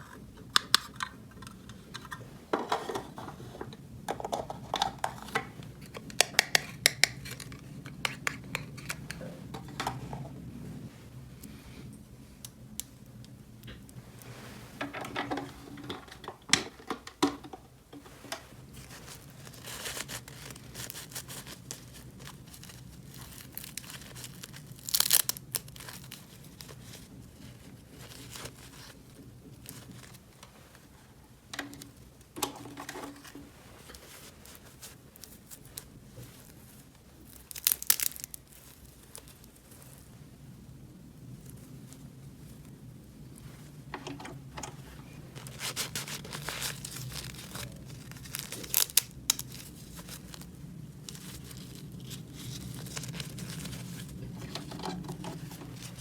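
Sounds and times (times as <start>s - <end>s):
packaging tearing and crinkling: 5.2s - 9.2s, 18.7s - 29.0s, 37.2s - 39.5s, 45.2s - 56.0s.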